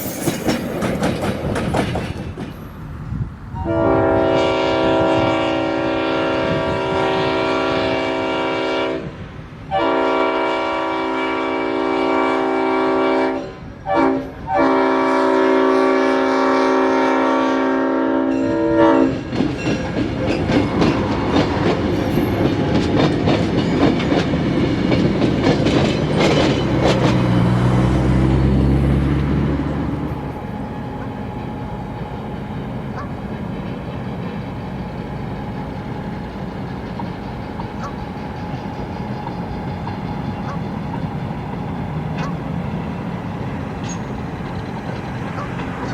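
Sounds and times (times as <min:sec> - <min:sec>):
wheels clattering over rail joints: 0:00.0 - 0:02.9, 0:19.1 - 0:45.9
locomotive air horn blasts: 0:03.6 - 0:19.3.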